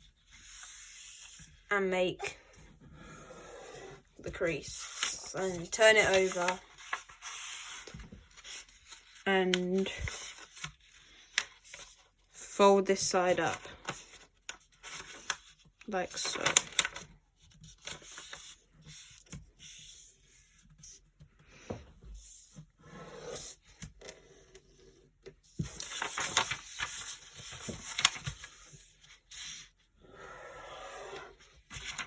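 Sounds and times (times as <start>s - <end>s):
paper rustling and creasing: 3.8s - 12.2s, 12.9s - 21.1s, 25.3s - 29.8s, 30.9s - 32.0s.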